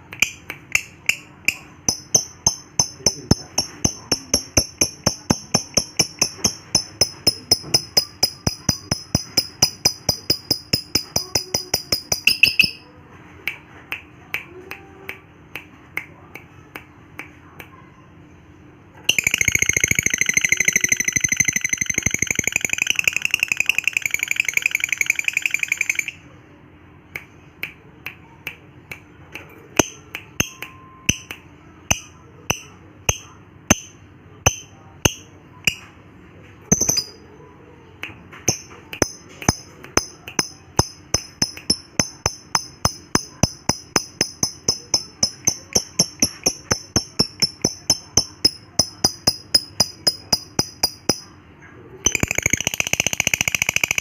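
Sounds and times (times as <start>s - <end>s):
lovebird chattering: 1.0s - 12.8s
lovebird sharp chirps: 6.2s - 12.8s.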